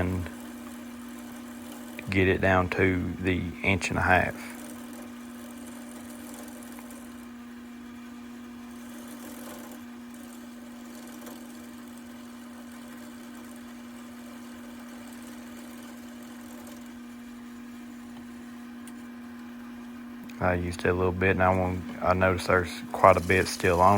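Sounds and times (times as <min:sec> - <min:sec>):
wood lathe humming: 0:00.0 - 0:23.9
scraper cutting wood: 0:22.9 - 0:23.9.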